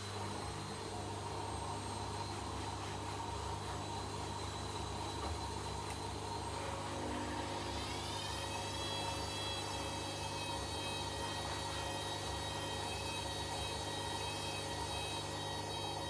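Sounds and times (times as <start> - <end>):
washing machine motor whining: 3.6 - 16.0.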